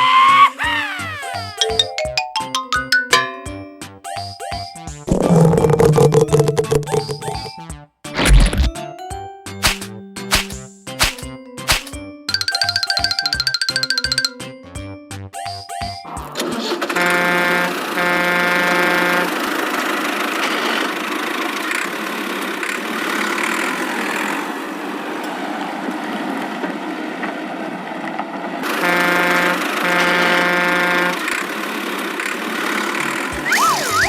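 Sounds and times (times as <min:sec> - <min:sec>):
engine-like running noise: 0:16.5 - 0:34.0
cartoon vehicle horn honking: 0:16.9 - 0:19.4, 0:28.7 - 0:31.3, 0:33.4 - 0:34.0.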